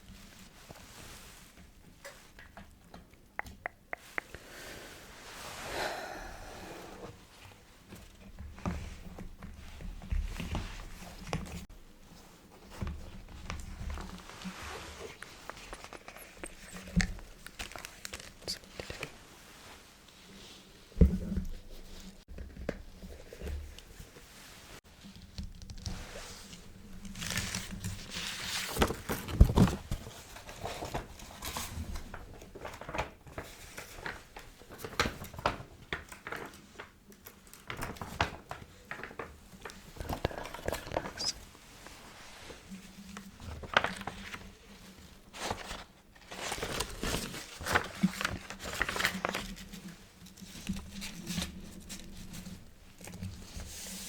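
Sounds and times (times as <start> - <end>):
small taps and clicks: 2.0 - 4.4.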